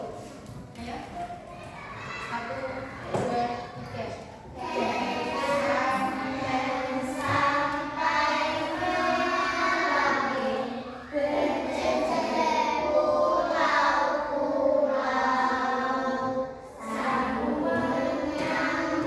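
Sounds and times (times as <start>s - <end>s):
children singing in unison: 4.5s - 19.0s.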